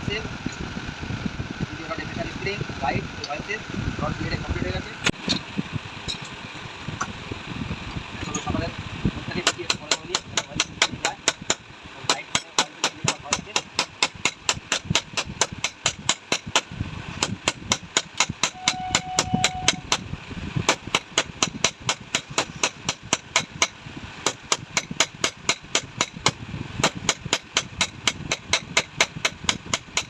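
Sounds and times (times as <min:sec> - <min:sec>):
hammer strikes on metal: 0:09.4 - 0:20.0, 0:20.7 - 0:30.0.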